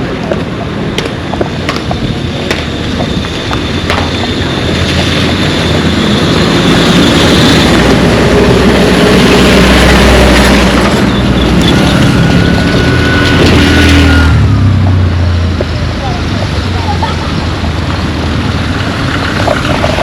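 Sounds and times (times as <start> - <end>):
vehicle engine running: 0.0 - 20.0
thin whine: 2.0 - 16.2.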